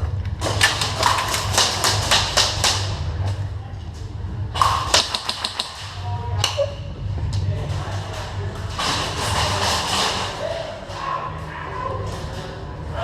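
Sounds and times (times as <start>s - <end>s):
low rumble: 0.0s - 5.0s, 5.8s - 13.0s
airsoft guns firing: 4.6s - 6.0s.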